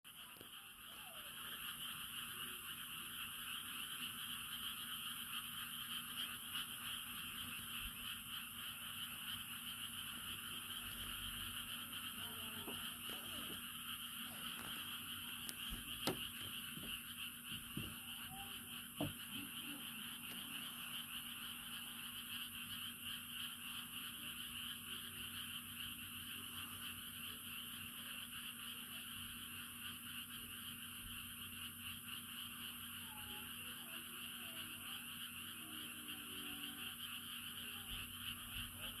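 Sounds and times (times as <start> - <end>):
chorus of frogs calling: 0.1 - 39.0.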